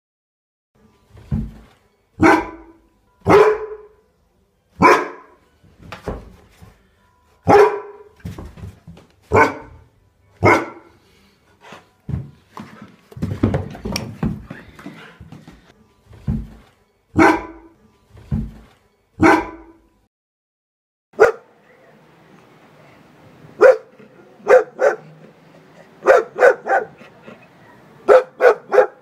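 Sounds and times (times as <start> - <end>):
dog barking: 2.2 - 4.0, 4.8 - 5.4, 7.5 - 8.1, 9.3 - 9.8, 10.4 - 11.0, 17.2 - 17.7, 19.2 - 19.8, 21.2 - 21.5, 23.6 - 25.2, 26.0 - 27.0, 27.6 - 29.0.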